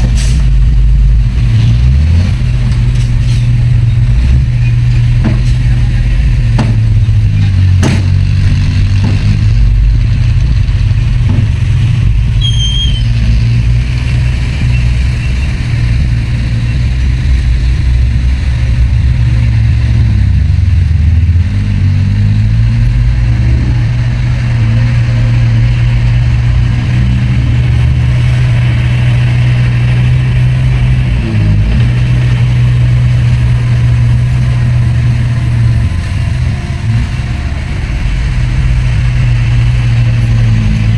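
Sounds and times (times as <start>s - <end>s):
heavy diesel engine running: 0.0s - 40.9s
sharp metal clanks: 6.5s - 9.6s.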